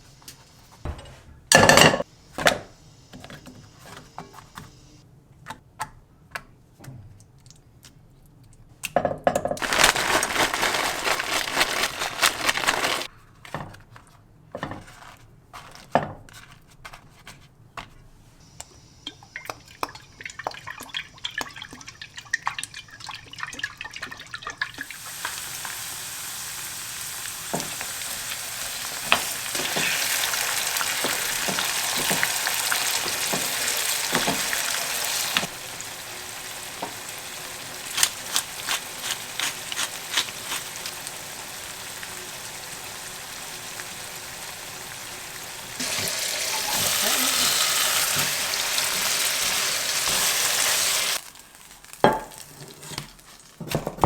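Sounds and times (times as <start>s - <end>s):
food sizzling in a frying pan: 9.6s - 13.1s, 24.8s - 53.4s.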